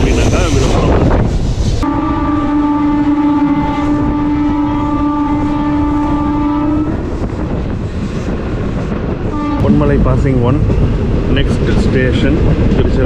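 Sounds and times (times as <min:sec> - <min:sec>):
moving train rumble: 0:00.0 - 0:13.0
train horn blast: 0:01.8 - 0:07.4, 0:09.3 - 0:10.3.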